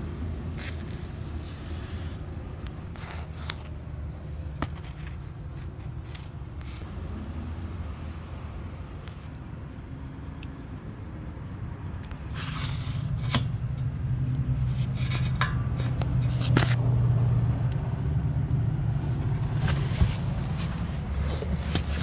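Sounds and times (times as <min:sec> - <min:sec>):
low steady rumble: 0:00.0 - 0:22.0
scrapes: 0:00.6 - 0:06.9, 0:12.2 - 0:17.5, 0:19.0 - 0:22.0.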